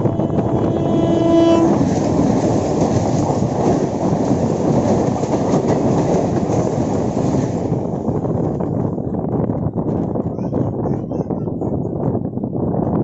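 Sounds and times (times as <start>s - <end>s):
train horn: 0.0s - 2.4s
rail noise with wheel clatter: 0.0s - 13.0s.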